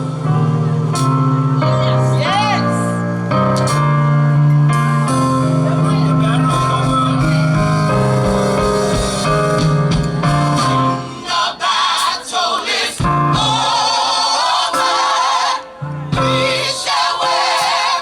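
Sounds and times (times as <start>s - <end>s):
bass line: 0.0s - 11.2s
band accompaniment: 0.0s - 12.3s, 12.9s - 14.2s, 14.8s - 18.0s
gospel group singing: 5.2s - 18.0s.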